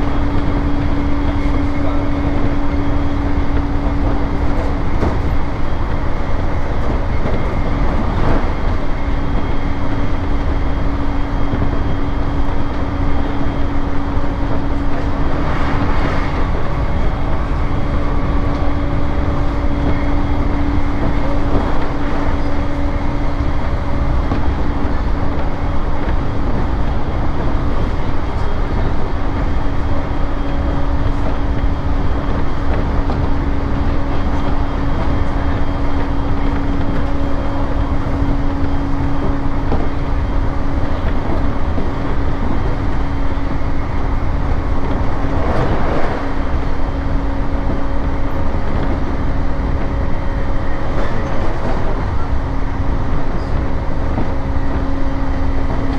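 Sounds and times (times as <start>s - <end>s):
train wheels rumbling on rail: 0.0s - 55.9s
low hum: 6.1s - 27.2s
brief rush of air: 15.0s - 18.6s.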